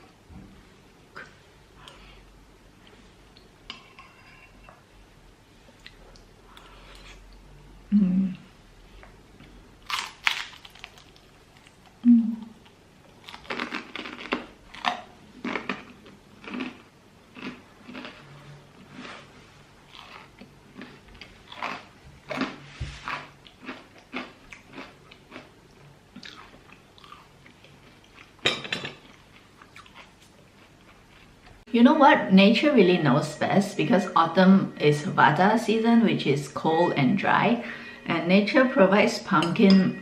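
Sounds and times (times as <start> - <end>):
person chewing crunchy food: 9.8 - 11.9, 12.6 - 28.4, 29.0 - 31.6.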